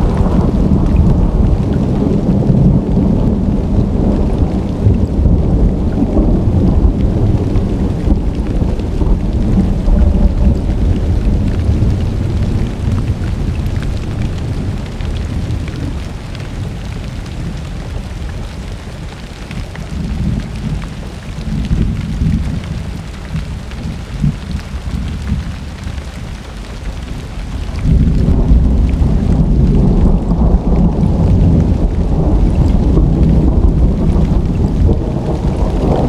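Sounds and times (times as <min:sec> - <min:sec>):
rolling thunder: 0:00.0 - 0:18.1, 0:27.0 - 0:36.0
steady rain: 0:00.0 - 0:36.0.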